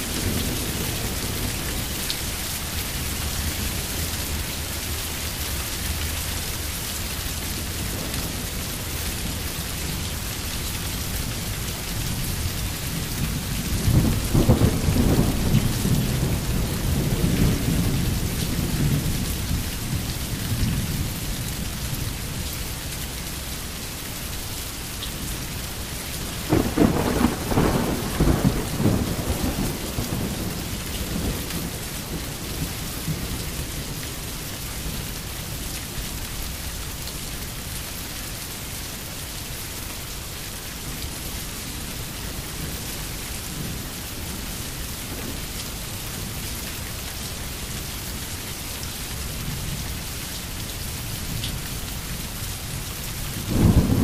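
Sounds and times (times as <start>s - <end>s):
heavy rain hiss: 0.0s - 54.0s
rolling thunder rumble: 12.9s - 19.4s, 26.3s - 34.0s, 53.4s - 54.0s
sharp thunderclap: 53.5s - 54.0s.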